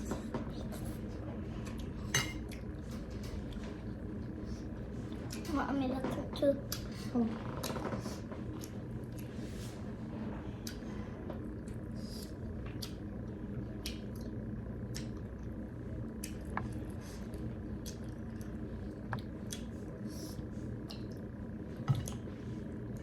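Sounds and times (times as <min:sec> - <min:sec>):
steady low hum: 0:00.0 - 0:23.0
chewing and mouth smacks: 0:08.5 - 0:09.4, 0:11.6 - 0:15.5, 0:16.1 - 0:19.8, 0:20.8 - 0:21.3.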